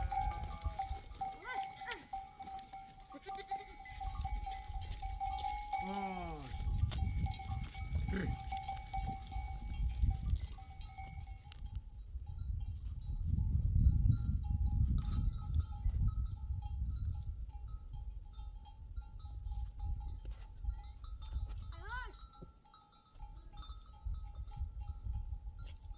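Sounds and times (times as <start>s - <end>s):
livestock bells jingling: 0.0s - 25.9s
animal bleat: 3.1s - 3.8s, 5.8s - 6.6s, 8.1s - 8.5s.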